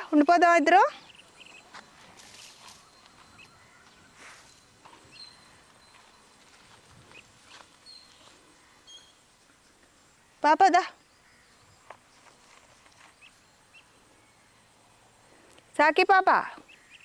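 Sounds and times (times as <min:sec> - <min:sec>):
faint rustling: 0:00.9 - 0:10.1
soft footsteps: 0:01.0 - 0:09.0, 0:11.8 - 0:13.4.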